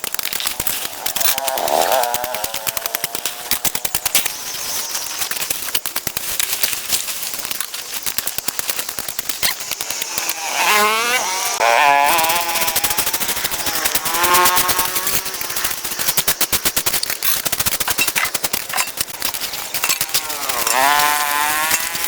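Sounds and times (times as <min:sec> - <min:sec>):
small two-stroke engine revving: 0:00.1 - 0:22.0.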